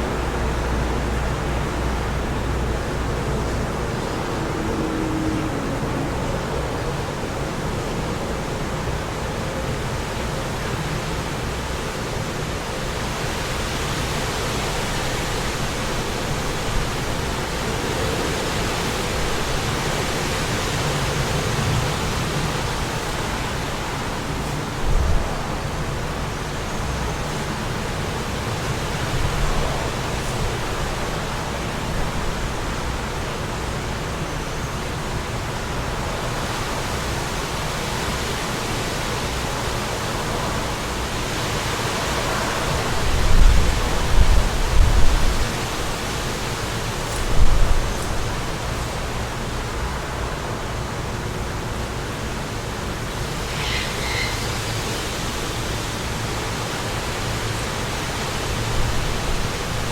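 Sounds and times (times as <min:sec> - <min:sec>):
wind rushing: 0:39.5 - 0:46.0.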